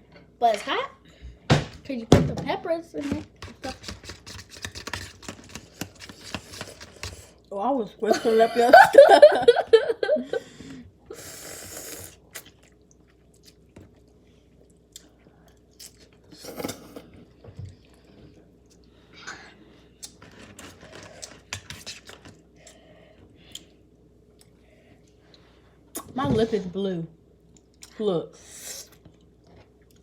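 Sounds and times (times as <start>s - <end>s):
person chewing noodles: 11.2s - 17.0s.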